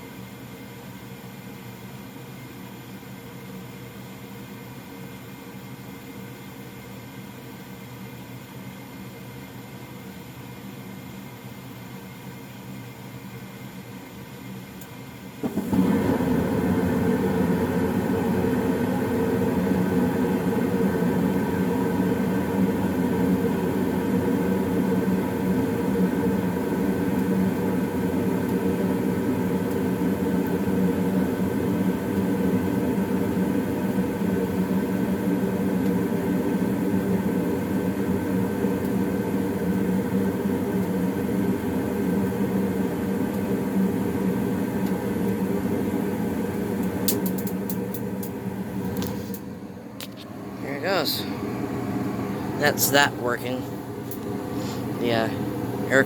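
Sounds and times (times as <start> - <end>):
furnace hum: 0.0 - 56.0
furnace blower rushing air: 15.4 - 56.0.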